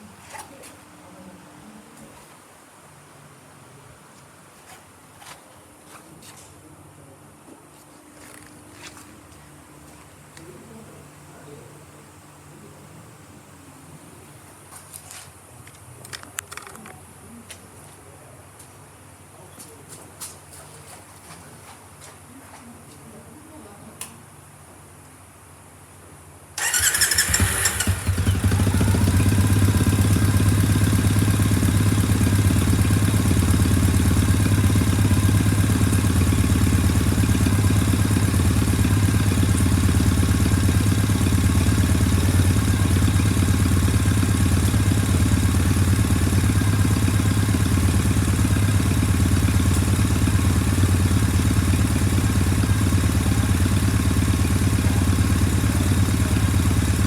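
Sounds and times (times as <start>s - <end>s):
starter motor cranking: 26.6s - 29.2s
motorcycle engine idling: 26.6s - 57.0s.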